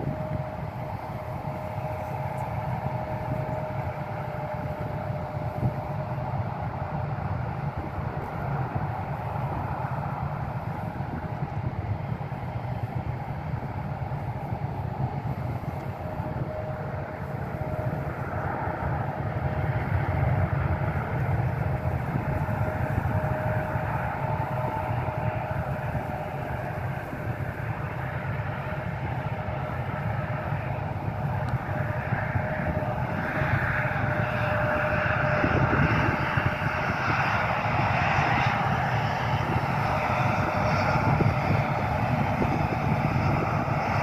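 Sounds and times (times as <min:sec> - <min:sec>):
aircraft engines rumbling: 0:00.0 - 0:44.0
thin steady whine: 0:00.0 - 0:44.0.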